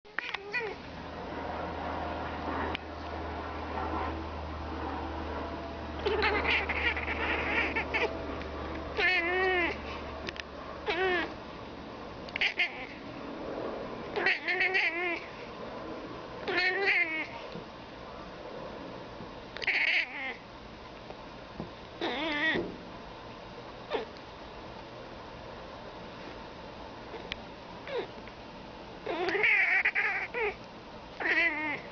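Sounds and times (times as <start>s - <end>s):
cat chattering meows: 0.1s - 0.8s, 6.0s - 8.2s, 9.0s - 9.8s, 10.8s - 11.4s, 12.3s - 13.0s, 14.1s - 15.3s, 16.5s - 17.4s, 19.6s - 20.4s, 22.0s - 22.6s, 27.9s - 28.1s, 29.0s - 30.6s, 31.2s - 31.9s.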